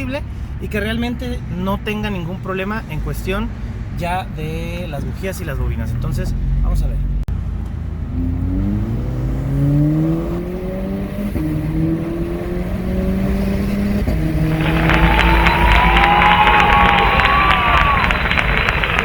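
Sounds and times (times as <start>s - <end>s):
car engine accelerating through gears: 5.6s - 19.0s
harsh noise with rising whistles: 14.4s - 19.0s.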